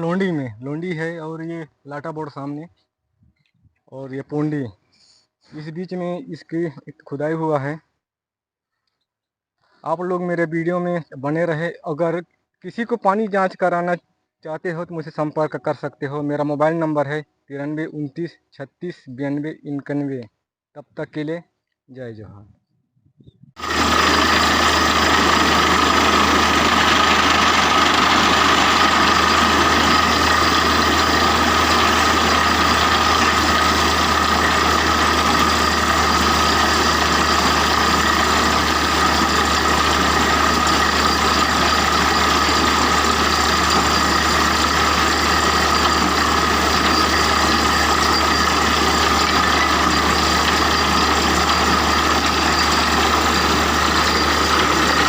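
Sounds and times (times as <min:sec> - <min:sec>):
large engine droning with whine: 0:23.6 - 0:55.0.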